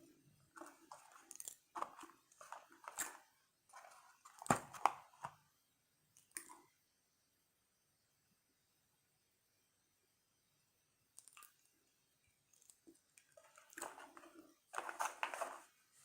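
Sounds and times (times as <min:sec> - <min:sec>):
person chewing crunchy food: 0:00.6 - 0:03.2.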